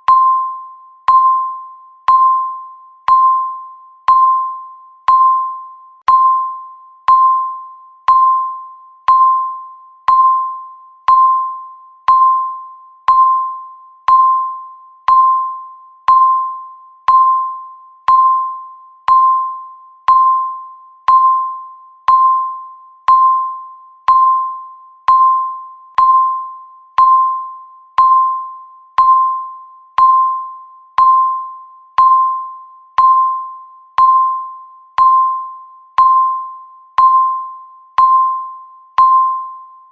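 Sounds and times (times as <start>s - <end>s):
timer beeps: 0.0s - 39.9s.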